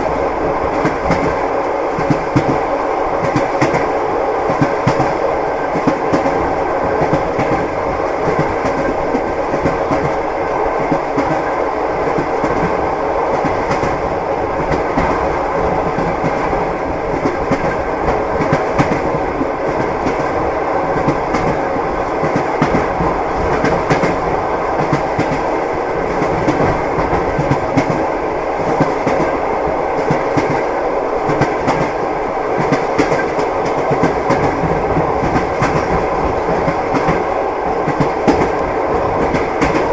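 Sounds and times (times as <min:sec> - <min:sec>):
train wheels clattering over rail joints: 0:32.6 - 0:39.9.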